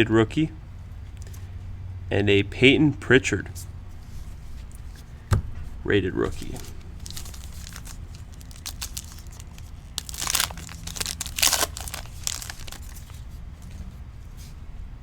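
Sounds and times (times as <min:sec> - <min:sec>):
plastic cards crinkling and sliding: 0:06.3 - 0:13.3.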